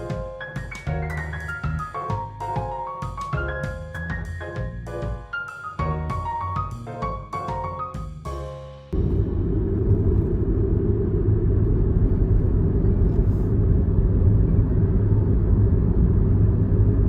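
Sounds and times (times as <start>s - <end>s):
piano music: 0.0s - 9.0s
loud low rumble: 9.0s - 17.0s.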